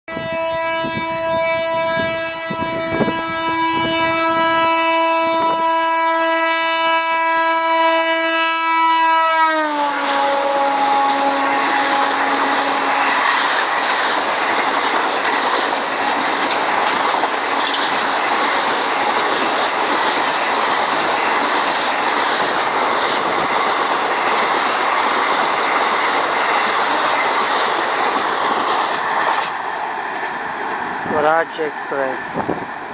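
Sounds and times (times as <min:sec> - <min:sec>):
locomotive horn blast: 0:00.1 - 0:13.2
train coaches rushing and clattering: 0:09.8 - 0:32.9.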